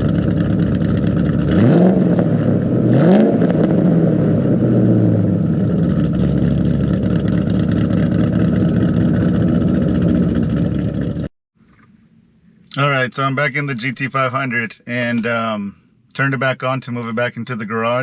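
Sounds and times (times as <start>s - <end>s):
car engine idling loud: 0.0s - 2.8s, 3.6s - 11.3s.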